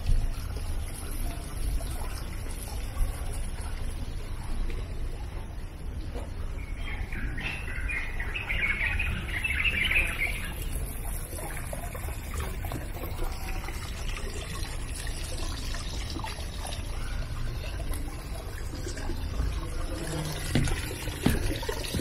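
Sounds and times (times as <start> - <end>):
birds chirping: 6.4 - 13.6.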